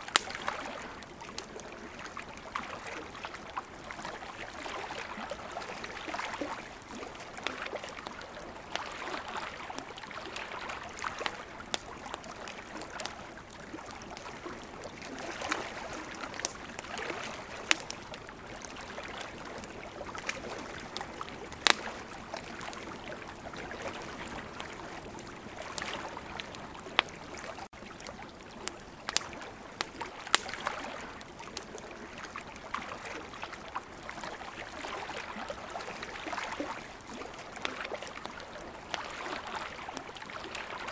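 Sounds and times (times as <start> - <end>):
ocean waves: 0.0 - 27.7
campfire crackling and popping: 0.0 - 40.9.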